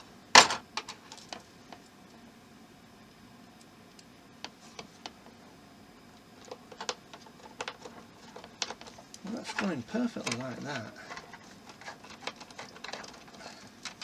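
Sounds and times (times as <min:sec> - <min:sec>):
plastic parts clicking into place: 0:06.4 - 0:14.0.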